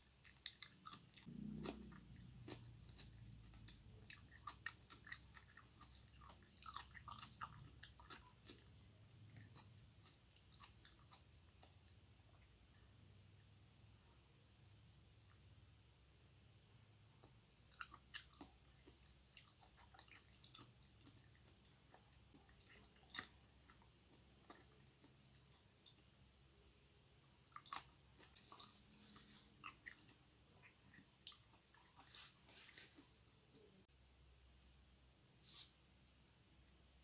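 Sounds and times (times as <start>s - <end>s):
mouth chewing wet clicks: 0.0s - 13.6s, 17.0s - 32.0s.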